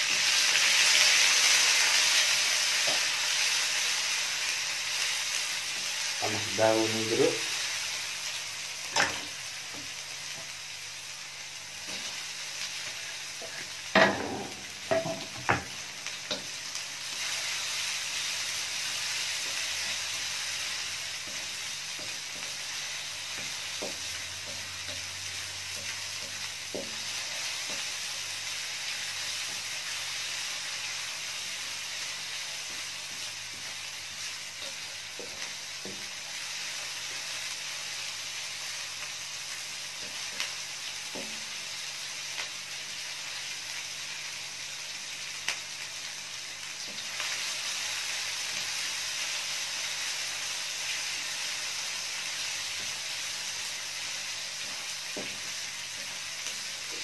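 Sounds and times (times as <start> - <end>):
paste sizzling in hot oil: 0.0 - 57.0.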